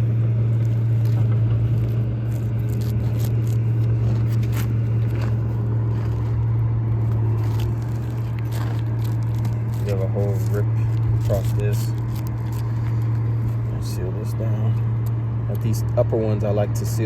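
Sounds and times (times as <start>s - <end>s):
low mechanical hum: 0.0s - 17.0s
shingles scraping and crackling: 0.6s - 6.4s, 7.0s - 13.6s.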